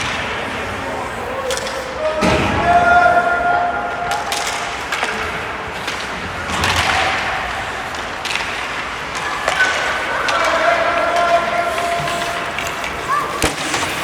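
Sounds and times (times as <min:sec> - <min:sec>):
skates scraping on ice: 0:00.0 - 0:14.0
sticks and puck knocking: 0:04.1 - 0:14.0.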